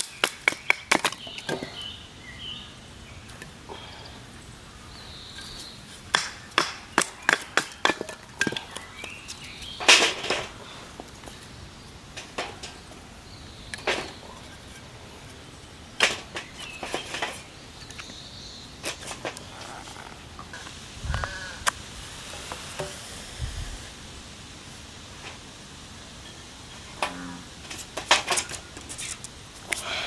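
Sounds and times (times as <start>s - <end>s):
sharp knocks and snaps: 0.0s - 1.7s, 6.1s - 10.6s.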